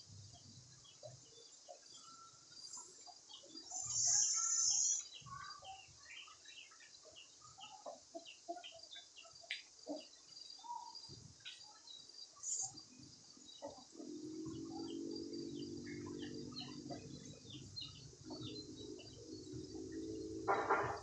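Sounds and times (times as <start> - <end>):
chickens clucking and chirping: 0.0 - 21.0
high insect drone: 1.8 - 6.2, 10.4 - 21.0.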